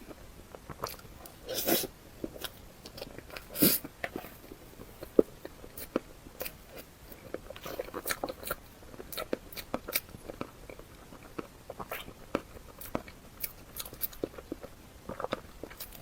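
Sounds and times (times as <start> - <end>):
person chewing crunchy food: 0.0 - 16.0.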